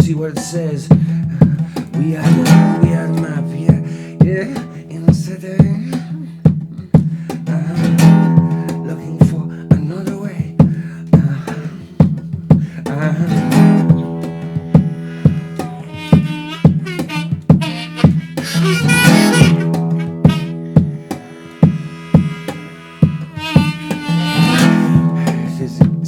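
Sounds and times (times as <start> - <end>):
acoustic guitar strumming: 0.0 - 26.0
wordless lead melody bending: 13.0 - 26.0.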